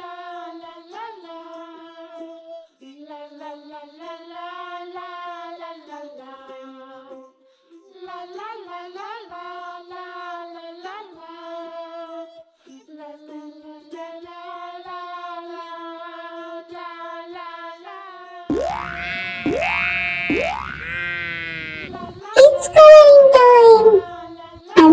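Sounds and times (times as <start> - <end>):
high voice singing slow melody: 18.5 - 24.2.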